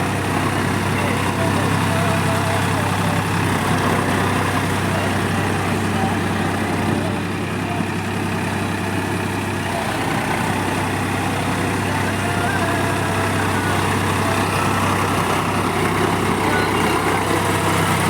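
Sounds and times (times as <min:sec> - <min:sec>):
tractor engine idling: 0:00.0 - 0:18.0.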